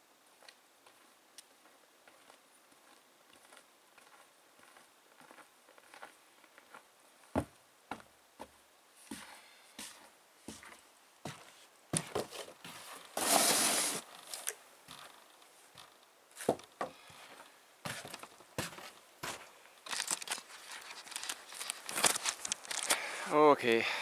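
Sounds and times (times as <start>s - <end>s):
snow crunching and scraping: 12.2s - 14.4s.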